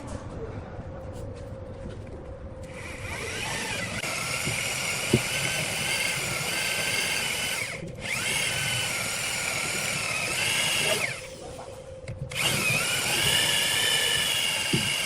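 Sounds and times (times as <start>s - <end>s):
electric power tool running: 2.7s - 11.2s, 12.3s - 15.0s.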